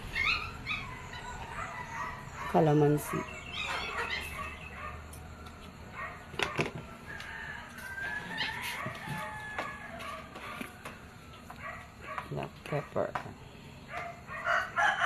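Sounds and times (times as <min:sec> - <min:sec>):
rooster crowing: 0:06.7 - 0:11.3, 0:14.2 - 0:15.0.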